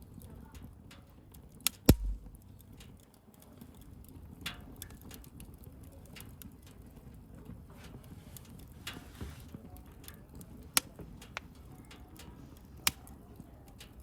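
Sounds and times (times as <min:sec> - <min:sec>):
bonfire crackling: 0:01.9 - 0:02.7.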